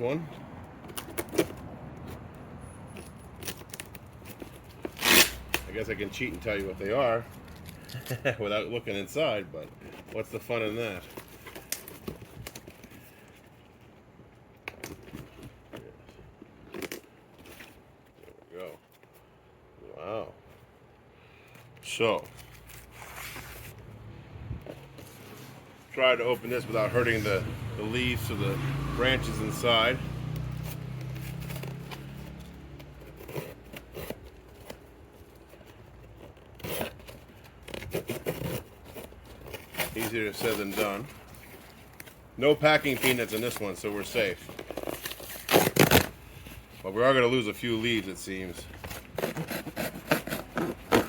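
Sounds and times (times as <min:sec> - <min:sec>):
cardboard box being opened: 0:30.8 - 0:46.9, 0:47.8 - 0:51.0.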